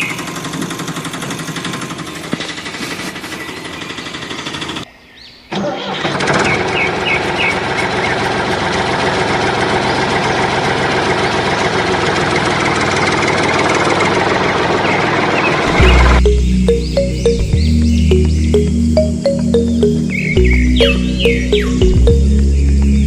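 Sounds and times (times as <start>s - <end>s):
rattling engine running: 0.0s - 4.8s, 6.0s - 16.3s
engine starting and running: 0.0s - 4.9s, 5.5s - 17.1s.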